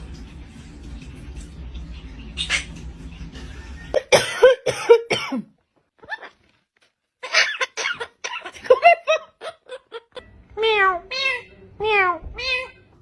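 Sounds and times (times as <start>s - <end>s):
parrot imitating coughing: 7.2s - 8.6s.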